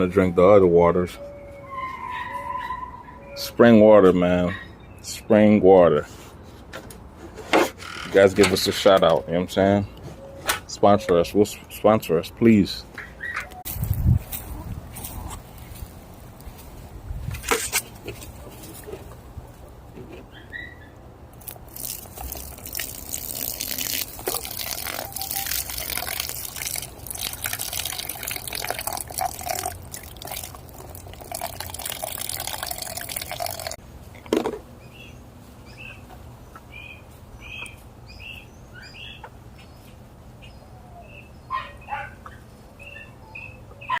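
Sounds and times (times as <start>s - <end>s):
water pouring and splashing: 21.4s - 33.8s
chickens chirping: 34.8s - 44.0s.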